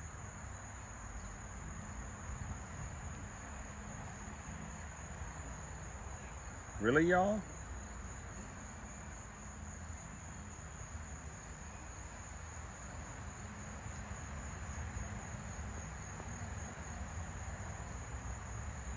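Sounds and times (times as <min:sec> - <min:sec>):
insects chirring: 0:00.0 - 0:18.9.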